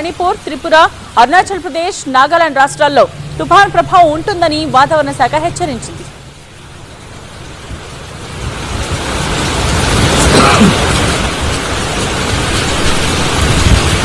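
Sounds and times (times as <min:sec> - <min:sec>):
heavy rain: 0:00.0 - 0:14.0
rumbling thunder: 0:07.6 - 0:14.0.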